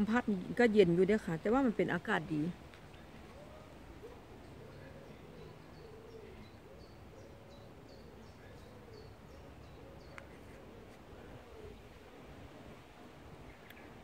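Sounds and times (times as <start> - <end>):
low hooting bird call: 2.9 - 14.0.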